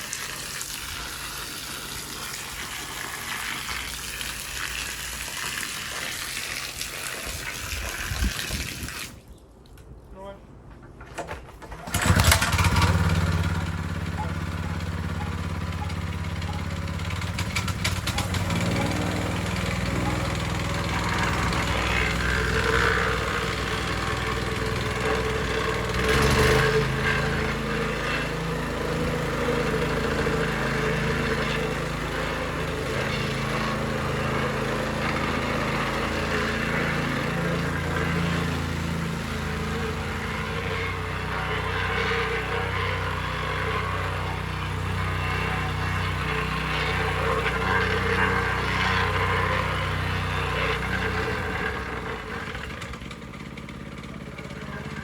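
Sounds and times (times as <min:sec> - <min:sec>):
plate compactor running: 0:11.6 - 0:55.0.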